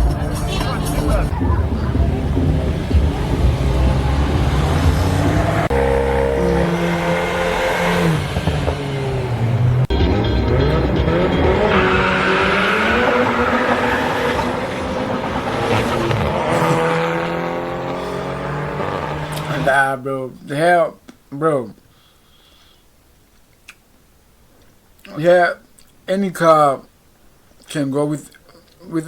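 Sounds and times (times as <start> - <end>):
racing car engines revving: 0.0 - 19.8.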